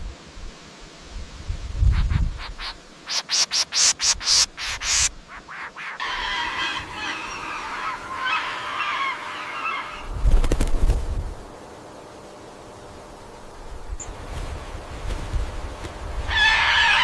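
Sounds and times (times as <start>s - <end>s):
parrots squawking and chattering: 1.9s - 10.1s, 16.3s - 17.0s.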